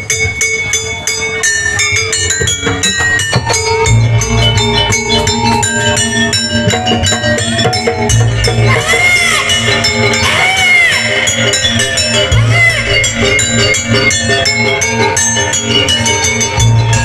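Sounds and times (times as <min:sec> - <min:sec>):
gamelan metallophones: 0:00.0 - 0:17.0
low drum: 0:02.2 - 0:09.1.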